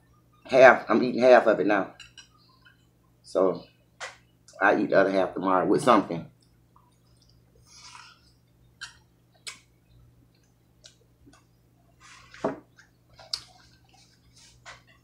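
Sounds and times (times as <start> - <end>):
faint steady hum: 0.0 - 15.0
person chewing with lip smacks: 12.7 - 14.8.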